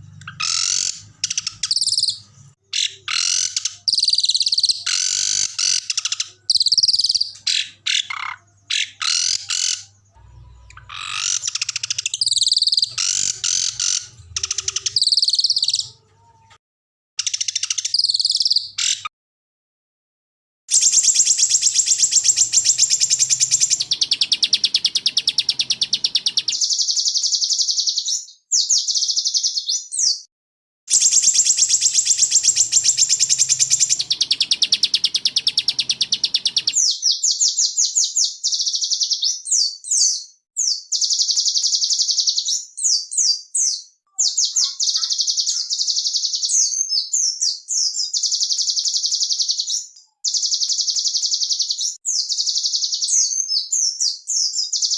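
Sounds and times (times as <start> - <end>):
songbird high-pitched trills: 0.2 - 15.9, 20.7 - 26.9, 30.9 - 36.8.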